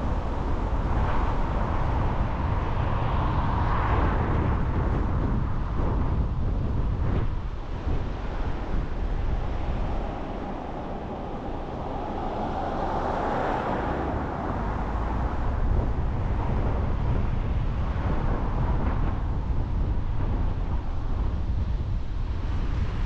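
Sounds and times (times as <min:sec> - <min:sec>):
car engine and road noise: 0:00.0 - 0:23.0
wind noise on microphone: 0:00.0 - 0:23.0
broad rushing swell: 0:07.5 - 0:16.0.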